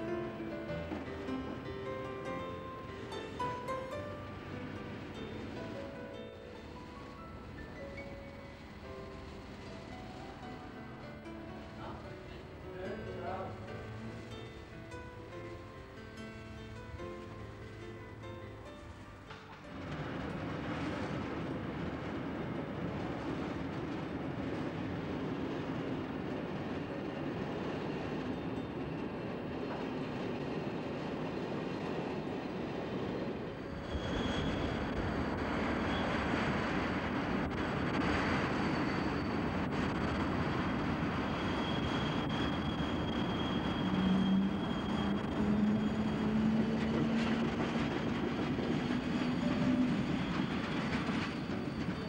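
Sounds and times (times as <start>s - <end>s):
train passing: 0.0s - 52.0s
trains rumbling: 0.0s - 52.0s
faint high whine: 32.4s - 52.0s.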